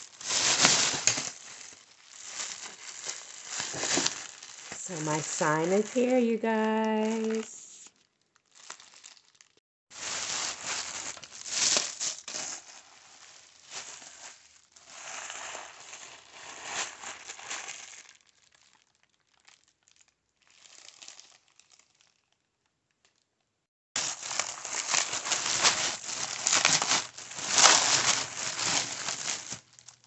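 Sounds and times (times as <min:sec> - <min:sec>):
packaging crinkling and rustling: 0:00.0 - 0:22.4, 0:24.0 - 0:30.0.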